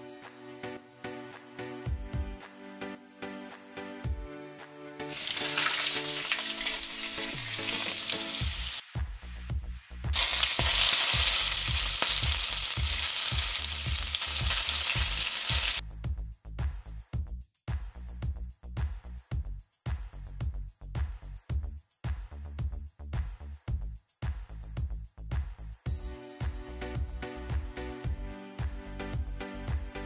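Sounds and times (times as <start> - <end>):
food sizzling in frying pan: 5.1 - 9.5, 10.1 - 15.8.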